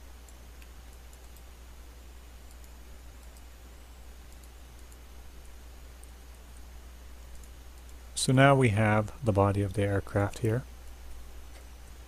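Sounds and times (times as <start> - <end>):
low electrical hum and hiss: 0.0 - 12.0
computer mouse clicking: 0.2 - 1.5, 2.4 - 3.6, 4.2 - 8.0.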